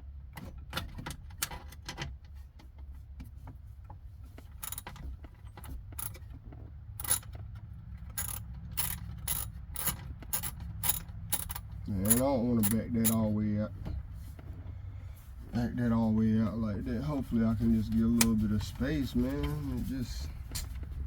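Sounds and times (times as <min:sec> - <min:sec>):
ratchet and sockets clicking: 0:04.6 - 0:05.0, 0:05.6 - 0:06.2, 0:07.0 - 0:07.4, 0:08.1 - 0:13.3.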